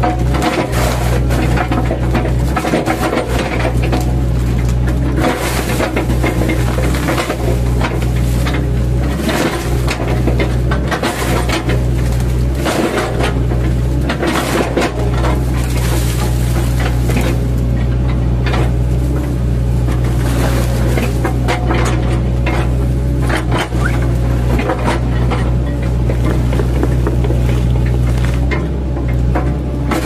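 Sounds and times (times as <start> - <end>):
diesel engine running: 0.0 - 30.0
wood cracking and crunching: 0.0 - 30.0.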